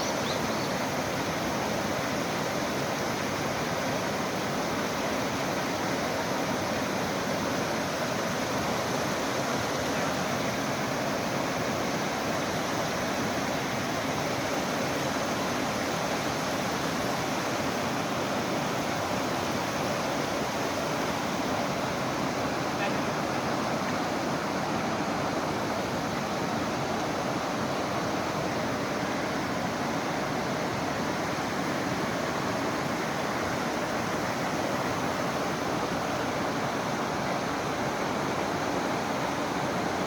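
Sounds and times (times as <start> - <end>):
stream water rushing: 0.0 - 40.0.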